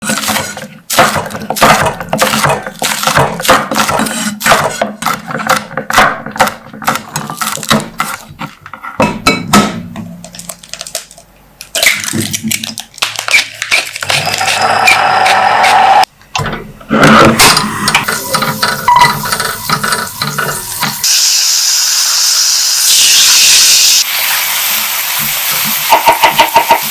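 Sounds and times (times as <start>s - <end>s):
utensils clinking against dishes: 17.5s - 21.1s.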